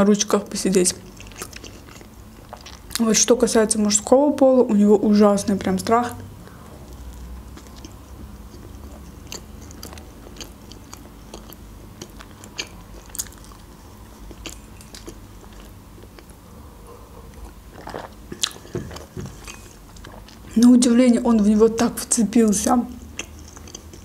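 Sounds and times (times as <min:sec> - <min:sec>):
person chewing food: 0:01.0 - 0:03.0, 0:06.3 - 0:20.7, 0:23.0 - 0:24.0.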